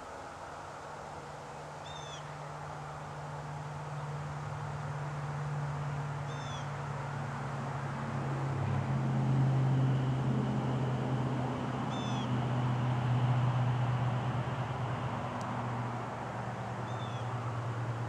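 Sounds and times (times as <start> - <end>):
low steady hum: 0.0 - 18.0
high down-slurred bird calls: 1.8 - 2.4, 6.3 - 6.7, 11.8 - 12.4, 16.8 - 17.4.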